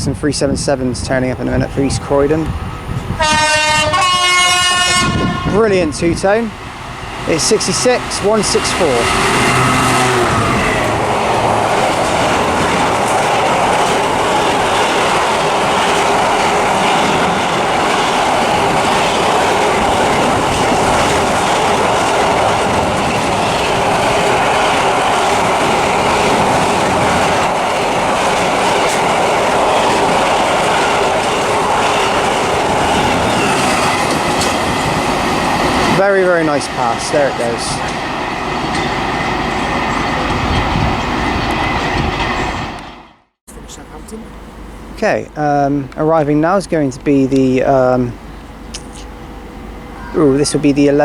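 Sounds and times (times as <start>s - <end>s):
freight train wheels rumbling: 0.0s - 51.0s
wheels clacking over rail joints: 0.4s - 43.1s.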